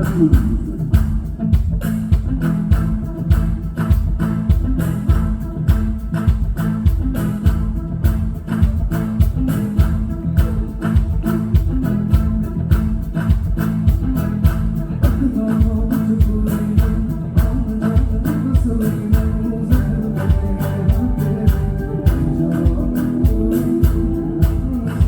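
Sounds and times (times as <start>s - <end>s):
bass and guitar: 0.0s - 25.0s
drum beat: 0.0s - 25.0s
person singing: 14.5s - 25.0s.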